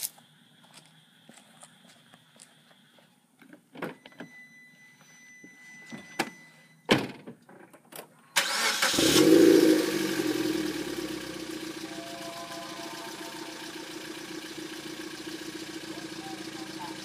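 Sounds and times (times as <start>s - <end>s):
car engine starting and idling: 8.4s - 17.0s.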